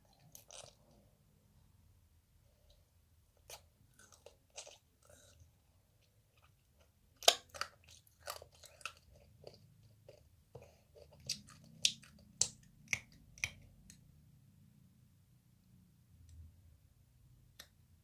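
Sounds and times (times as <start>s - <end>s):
crunchy candy chewing: 0.2s - 1.0s, 3.5s - 5.4s, 6.3s - 13.5s.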